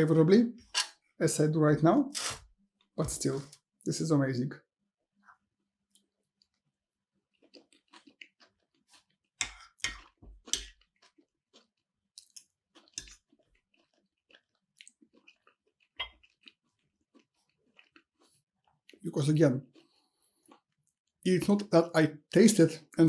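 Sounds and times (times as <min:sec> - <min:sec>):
chewing and biting food: 0:06.0 - 0:19.0, 0:19.6 - 0:21.0.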